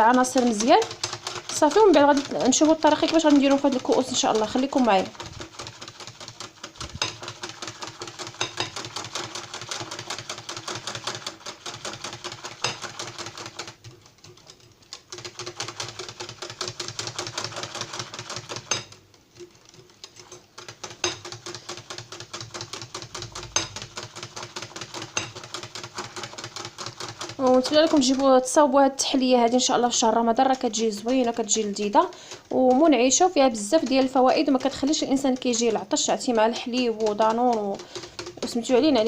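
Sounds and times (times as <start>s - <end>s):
hand whisk clicking against bowl: 0.0s - 13.4s, 14.2s - 28.5s, 29.5s - 39.0s.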